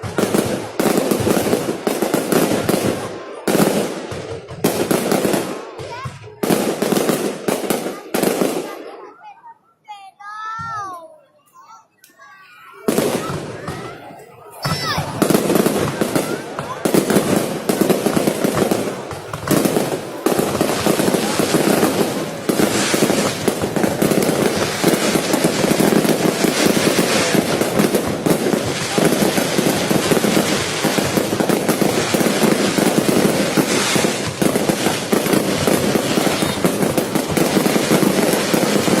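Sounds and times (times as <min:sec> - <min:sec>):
fireworks bangs and crackles: 0:00.0 - 0:09.3, 0:12.7 - 0:39.0.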